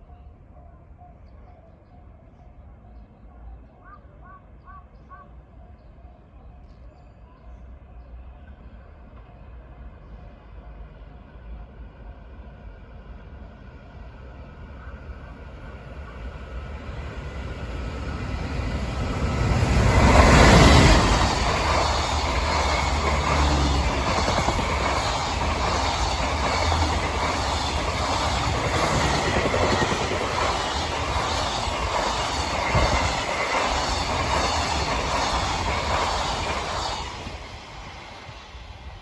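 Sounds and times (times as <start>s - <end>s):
freight train passing: 8.2s - 39.0s.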